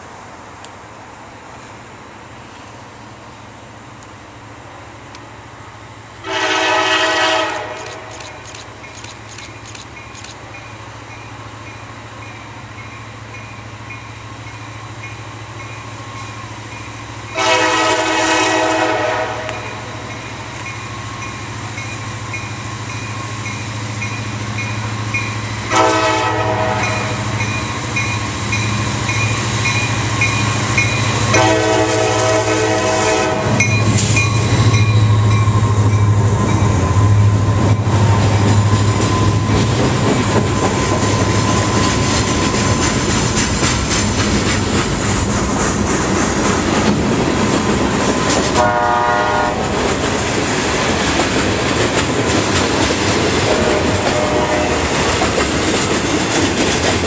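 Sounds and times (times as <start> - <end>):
locomotive engine rumble: 0.0 - 57.0
locomotive horn blasts: 6.2 - 8.2, 17.3 - 20.0, 25.7 - 27.4, 31.1 - 33.7, 48.6 - 49.7, 53.5 - 55.0
crossing bell ringing: 9.9 - 17.5, 19.6 - 25.5, 26.8 - 31.5, 33.5 - 37.0
freight cars clattering on rails: 37.5 - 48.8, 49.5 - 57.0.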